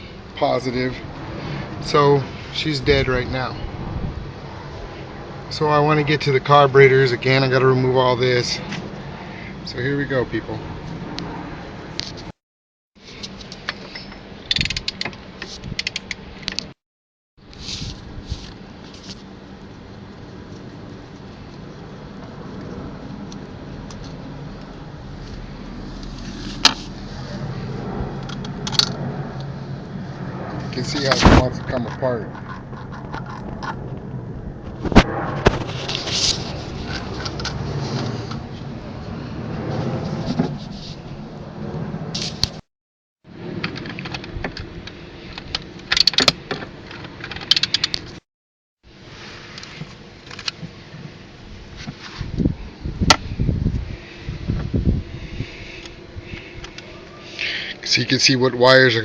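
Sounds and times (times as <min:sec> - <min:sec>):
sharp metallic click: 0:14.4 - 0:16.7
steady low hum: 0:17.4 - 0:42.5, 0:48.9 - 0:59.0.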